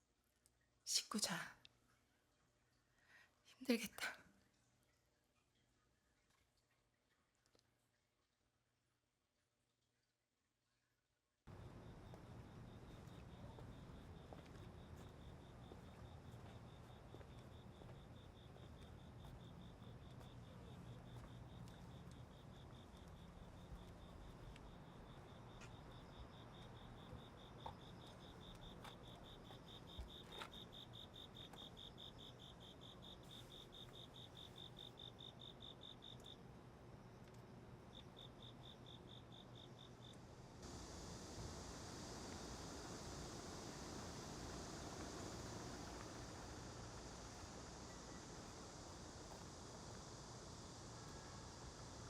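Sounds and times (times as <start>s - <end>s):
crickets chirping: 11.5s - 52.0s
low room hum: 11.5s - 52.0s
soft hiss: 40.1s - 52.0s.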